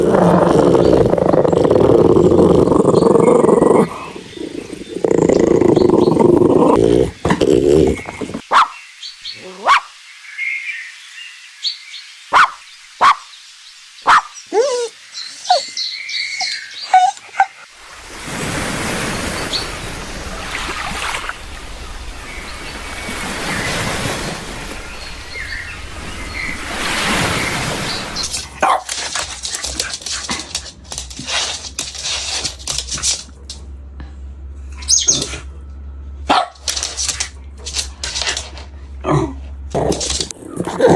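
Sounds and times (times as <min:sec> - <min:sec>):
puppy growling: 0:00.0 - 0:08.4, 0:28.2 - 0:33.7, 0:34.6 - 0:40.9
puppy barking and yipping: 0:09.6 - 0:09.9, 0:12.3 - 0:13.2, 0:14.0 - 0:14.9, 0:16.9 - 0:17.6, 0:28.4 - 0:33.0, 0:34.8 - 0:35.4, 0:36.3 - 0:38.3.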